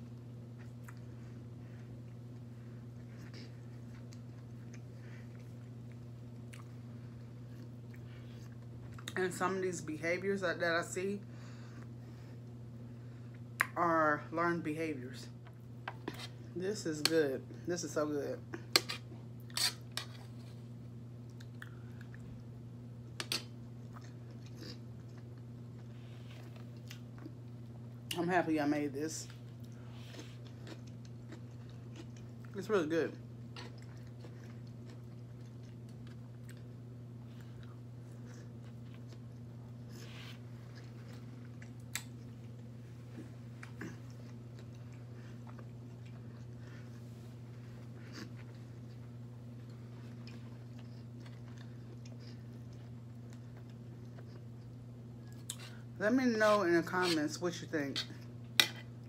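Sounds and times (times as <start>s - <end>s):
person chewing food: 0.0s - 9.2s, 18.6s - 28.2s, 29.3s - 32.6s, 33.2s - 55.9s
steady low hum: 0.0s - 59.0s.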